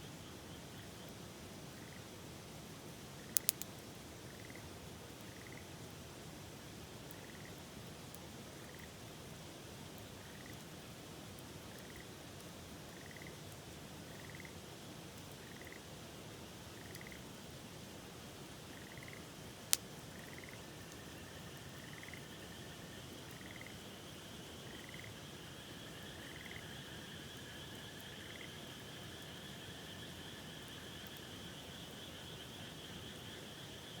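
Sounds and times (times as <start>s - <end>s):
frogs trilling: 4.3s - 4.7s, 12.9s - 13.4s, 14.1s - 14.6s, 15.4s - 15.8s, 16.8s - 17.2s, 18.7s - 19.3s, 20.1s - 34.0s.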